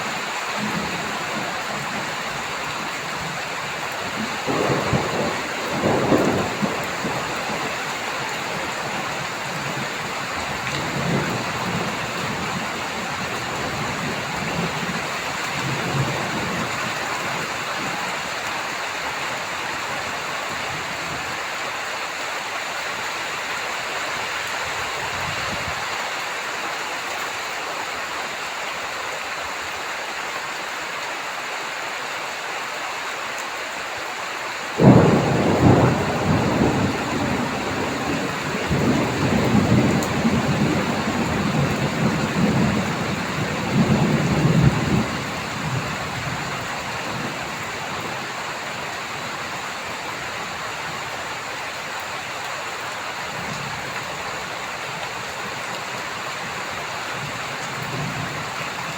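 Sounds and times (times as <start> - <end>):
heavy rain falling: 0.0 - 58.9
thunder rumbling: 3.2 - 18.0, 34.8 - 48.5
loud thunderclap: 4.5 - 7.8, 34.8 - 46.4.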